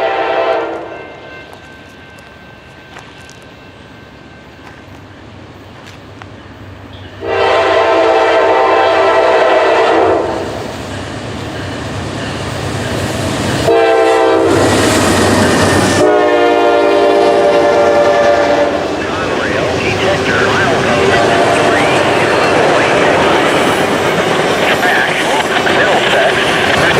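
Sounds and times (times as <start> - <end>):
locomotive air horn blasts: 0.0 - 0.9, 7.2 - 10.5, 13.6 - 14.6, 15.9 - 18.9
low rumble of passing train: 0.0 - 26.9.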